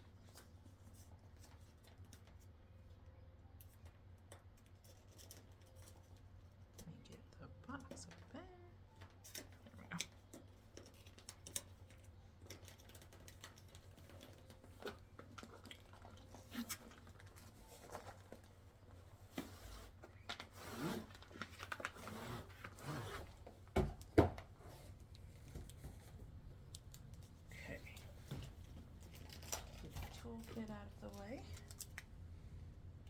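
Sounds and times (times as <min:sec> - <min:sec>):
packaging rustling and tearing: 0:10.8 - 0:23.7.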